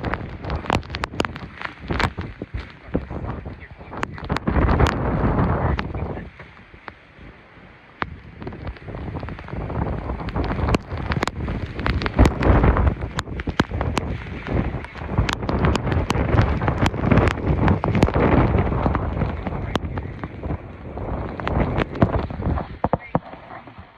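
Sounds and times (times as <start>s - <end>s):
sharp ticks and taps: 0.0s - 2.7s, 10.2s - 20.5s
storm wind buffeting microphone: 0.0s - 23.9s.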